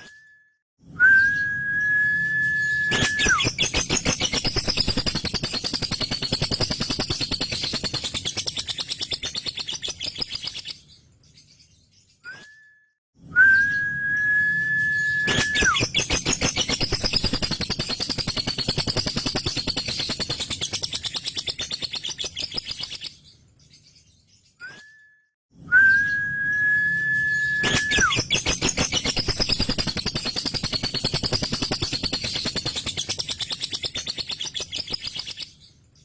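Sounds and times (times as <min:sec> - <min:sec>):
high whistled bird note: 0:01.0 - 0:03.6, 0:13.4 - 0:16.0, 0:25.7 - 0:28.9
lovebird rattling chatter: 0:02.9 - 0:10.6, 0:15.3 - 0:23.0, 0:27.6 - 0:35.6.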